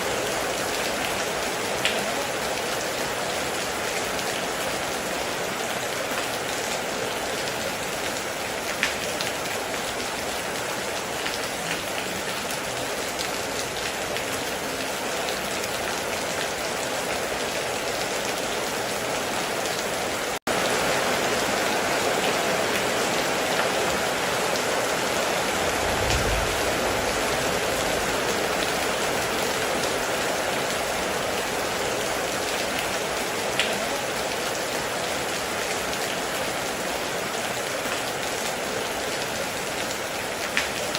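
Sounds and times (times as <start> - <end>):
heavy rain falling: 0.0 - 40.9
sharp louder raindrops: 0.0 - 40.9
low rumble: 25.5 - 28.6.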